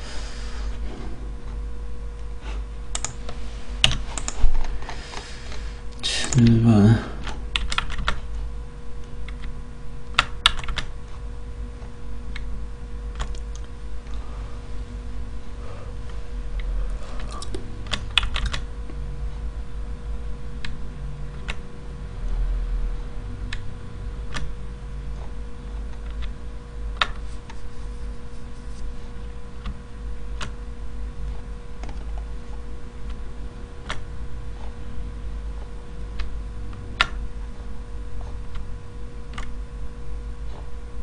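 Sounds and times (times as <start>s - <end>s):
steady electrical hum: 0.0s - 41.0s
keyboard keystrokes: 7.2s - 8.2s, 17.9s - 18.6s.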